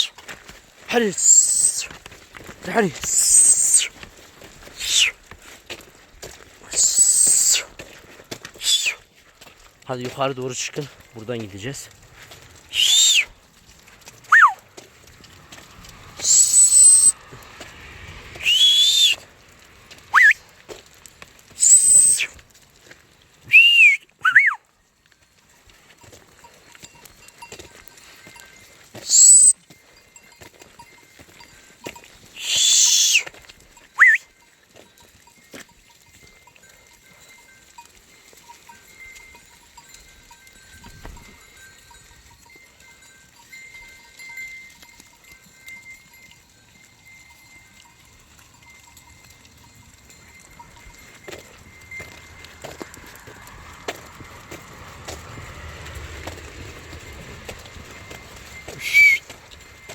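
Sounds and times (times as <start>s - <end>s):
sharp high-pitched whistles: 1.2s - 1.9s, 3.1s - 4.0s, 6.7s - 7.7s, 8.6s - 9.0s, 12.7s - 13.3s, 14.3s - 14.6s, 16.1s - 17.3s, 18.2s - 19.3s, 20.1s - 20.5s, 21.5s - 22.4s, 23.5s - 24.6s, 29.0s - 29.6s, 32.4s - 33.3s, 34.0s - 34.3s, 58.1s - 59.9s
faint tinkling bells: 25.2s - 29.0s, 29.6s - 32.4s, 33.4s - 53.5s.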